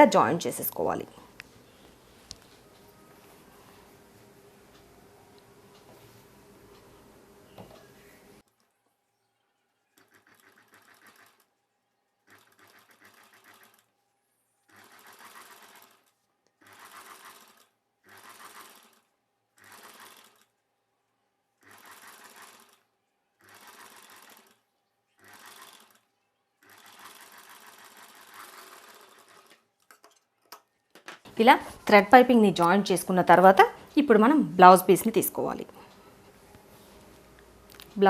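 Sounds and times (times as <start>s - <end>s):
sewing machine stitching: 10.0s - 11.5s, 12.2s - 13.9s, 14.6s - 20.6s, 21.6s - 30.3s.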